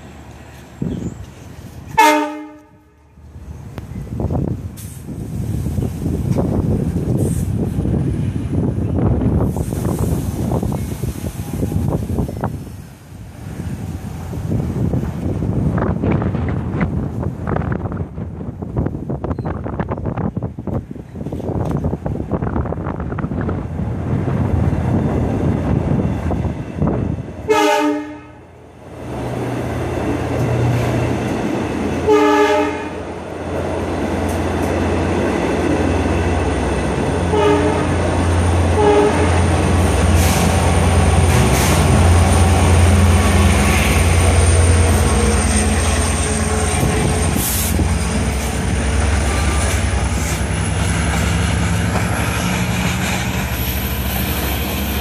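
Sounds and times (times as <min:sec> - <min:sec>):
diesel locomotive engine: 0:00.0 - 0:55.0
locomotive horn blasts: 0:01.9 - 0:03.2, 0:27.5 - 0:28.5, 0:32.0 - 0:33.1, 0:37.3 - 0:38.0, 0:38.7 - 0:39.5
wind buffeting microphone: 0:03.4 - 0:27.6, 0:33.0 - 0:55.0.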